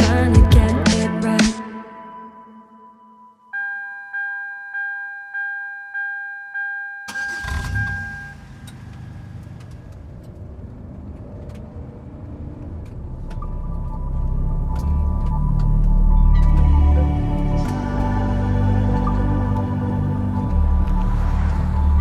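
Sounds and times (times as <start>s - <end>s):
low rumbling: 9.1s - 22.0s.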